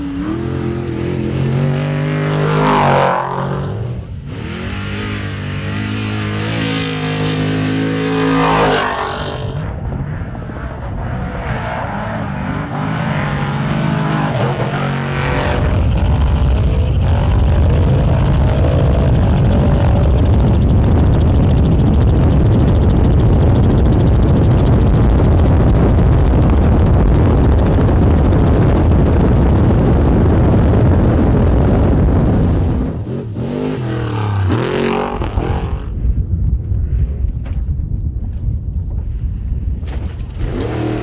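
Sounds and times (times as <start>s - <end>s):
engine revving: 0.0s - 9.7s, 10.9s - 36.0s, 40.3s - 41.0s
wind and road noise: 0.0s - 41.0s
truck engine running hard: 12.4s - 36.1s.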